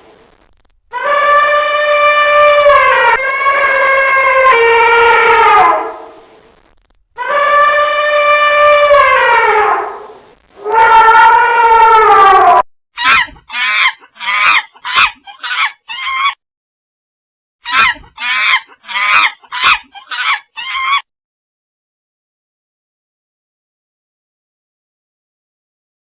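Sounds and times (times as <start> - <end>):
long drawn-out animal calls: 10.6 - 16.4, 17.6 - 21.0
short harsh animal calls: 13.0 - 16.3, 17.6 - 21.0.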